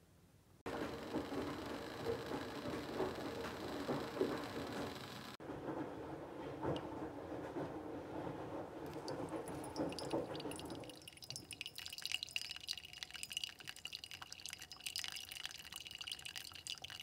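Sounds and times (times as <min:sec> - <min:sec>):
coffee dripping into a mug: 0:08.9 - 0:17.0
thin steady ringing: 0:08.9 - 0:17.0.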